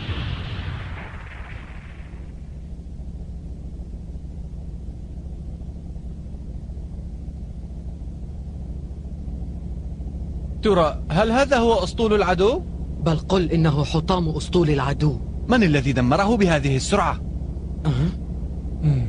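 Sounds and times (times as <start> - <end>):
cartoon explosion rumble: 0.0 - 2.6
steady low hum: 0.0 - 19.0.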